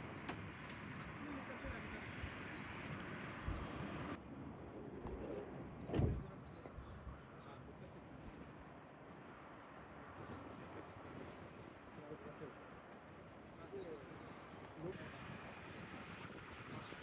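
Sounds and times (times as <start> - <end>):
birds chirping: 0.0 - 17.0
dull thump: 5.9 - 6.3.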